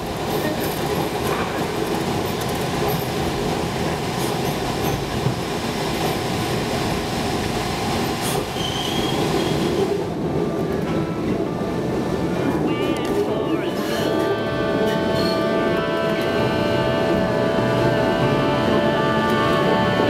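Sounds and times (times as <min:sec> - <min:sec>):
subway train rumble and rattle: 0:00.0 - 0:20.0
high wheel squeal: 0:08.6 - 0:09.8.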